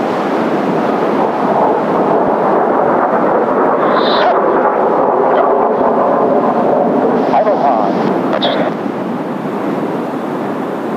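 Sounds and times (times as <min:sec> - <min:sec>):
breaking surf: 0:00.0 - 0:10.9
distant jet engines roaring: 0:00.0 - 0:10.9
wind on microphone: 0:00.0 - 0:10.9.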